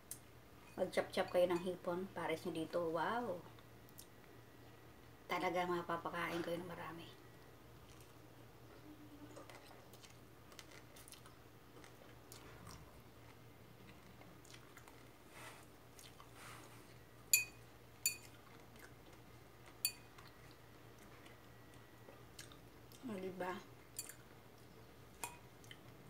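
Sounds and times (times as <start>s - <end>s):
person chewing salad: 7.8s - 8.3s, 9.3s - 17.1s, 18.0s - 23.0s, 23.9s - 26.0s
metal fork clinking on bowl: 17.3s - 18.3s, 19.8s - 20.1s.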